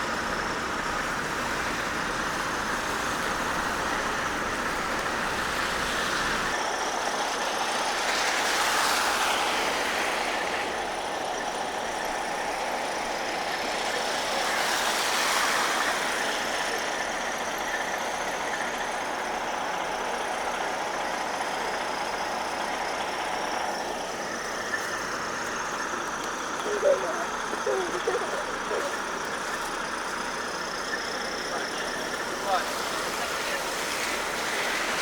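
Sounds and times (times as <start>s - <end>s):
cars passing on snowy road: 0.0s - 35.0s.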